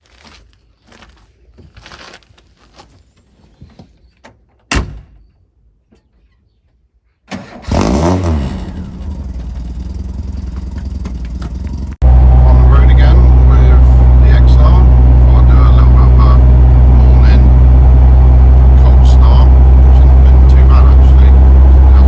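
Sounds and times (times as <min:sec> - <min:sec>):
car engine starting and idling: 0:07.3 - 0:22.0.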